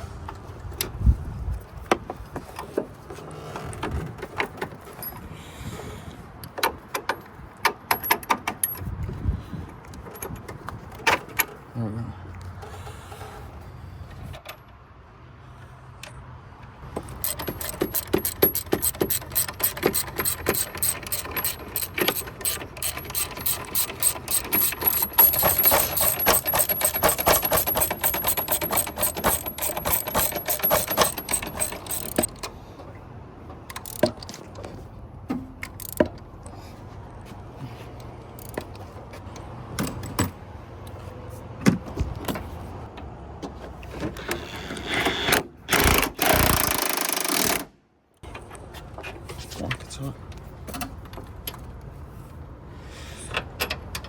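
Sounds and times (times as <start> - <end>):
clinks of tools and metal parts: 6.4 - 8.9, 17.0 - 32.5, 33.7 - 34.8
ratchet wrench clicking rapidly: 17.1 - 32.3, 33.8 - 34.1, 35.8 - 36.0.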